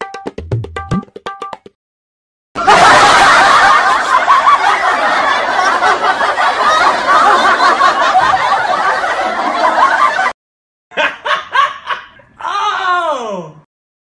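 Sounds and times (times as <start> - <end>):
laugh track: 2.6 - 12.4
man laughing heartily: 10.9 - 12.3.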